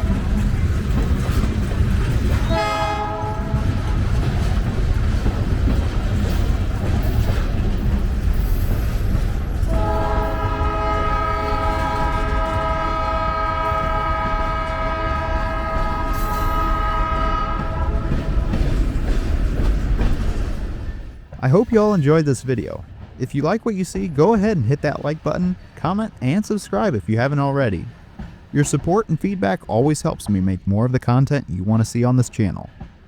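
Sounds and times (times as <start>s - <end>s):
locomotive rumbling past: 0.0s - 31.8s
locomotive horn blasts: 2.4s - 4.0s, 9.6s - 18.6s.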